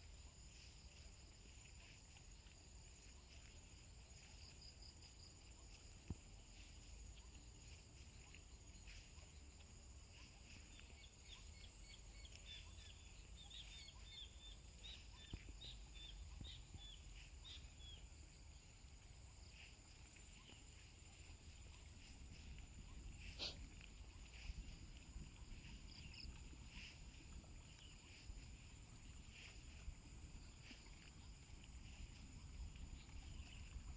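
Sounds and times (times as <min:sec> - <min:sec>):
insects droning: 0:00.0 - 0:33.9
bird chirping: 0:10.2 - 0:18.2.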